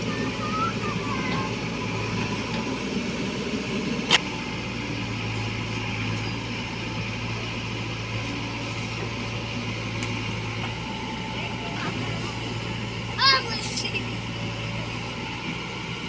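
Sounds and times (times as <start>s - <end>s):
diesel engine humming: 0.0s - 16.0s.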